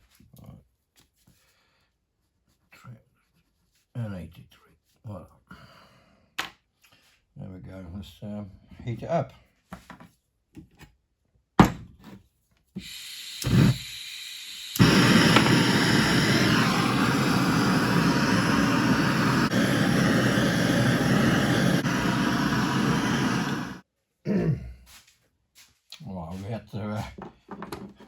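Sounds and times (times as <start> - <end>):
blowtorch flame roaring: 12.8 - 23.8
blowtorch igniter click: 12.8 - 23.8
gas hissing: 12.8 - 23.8.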